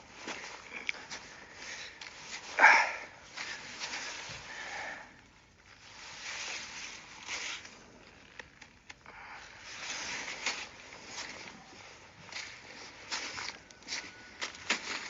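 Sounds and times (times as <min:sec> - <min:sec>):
footsteps in wet snow: 0:10.2 - 0:15.0.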